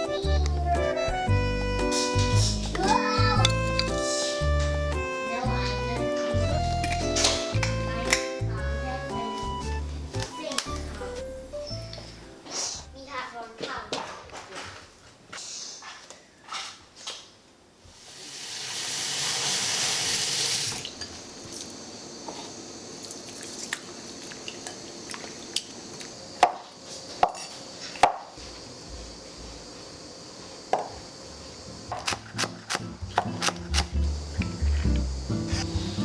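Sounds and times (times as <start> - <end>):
kitchen tap running: 18.0 - 21.8, 22.8 - 25.8.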